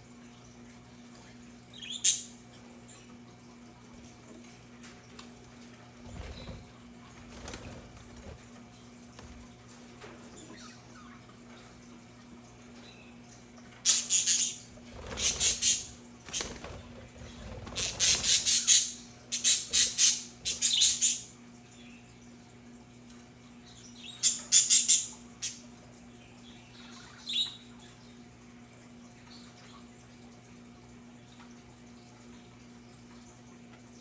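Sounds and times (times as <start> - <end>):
faint steady hum: 0.0 - 34.0
budgerigars squawking and chattering: 13.9 - 16.6, 17.7 - 21.3.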